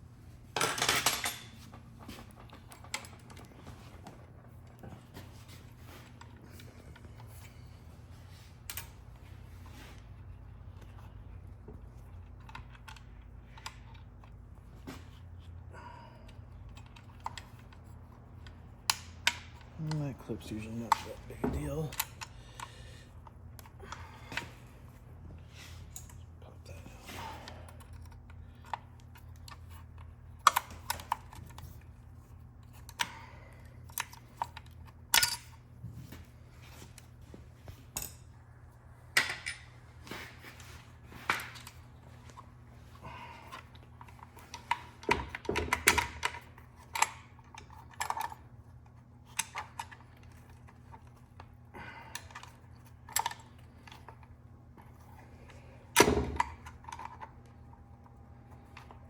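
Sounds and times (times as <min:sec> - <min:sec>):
steady low hum: 0:00.0 - 0:59.0
metal parts clinking: 0:00.6 - 0:01.6, 0:33.9 - 0:35.6.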